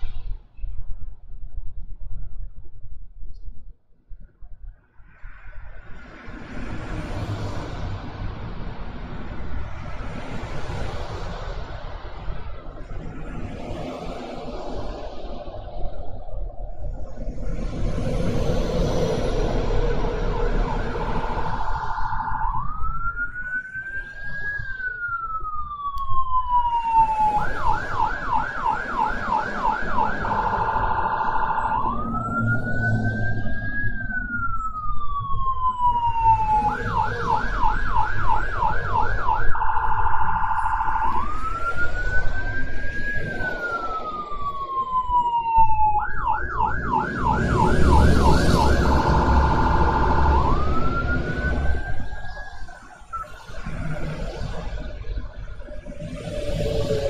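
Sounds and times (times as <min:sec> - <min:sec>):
electronic siren wailing and yelping: 0:18.4 - 0:57.0.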